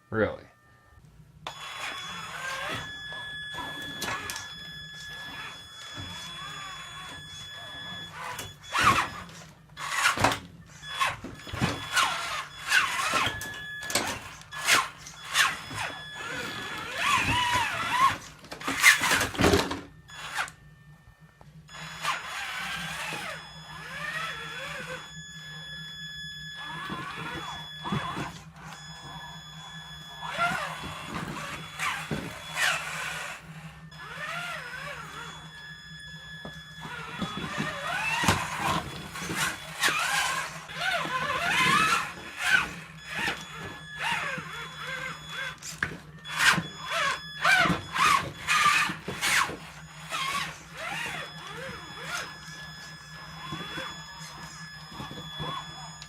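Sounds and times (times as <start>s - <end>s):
electric motor whining: 0.6s - 56.0s
toy truck knocking over bricks: 16.8s - 20.5s.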